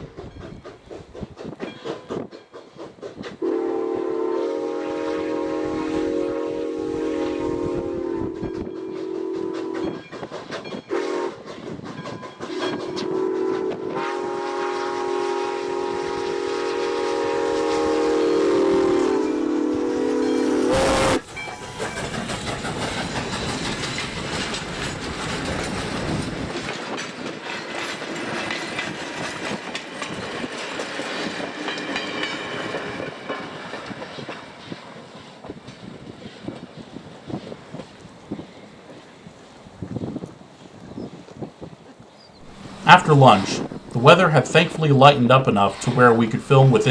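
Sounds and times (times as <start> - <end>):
train wheels clicking over rail joints: 0.0 - 3.6, 8.4 - 13.2, 21.2 - 39.1, 42.4 - 46.9
train rumble: 0.0 - 41.7, 42.4 - 46.9
steam locomotive chime whistle: 3.4 - 22.8, 42.4 - 46.9.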